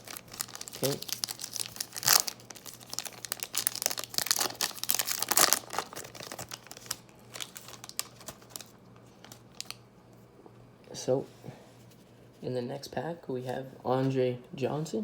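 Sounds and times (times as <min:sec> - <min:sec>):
cellophane wrapper crinkling and tearing: 0:00.0 - 0:09.8.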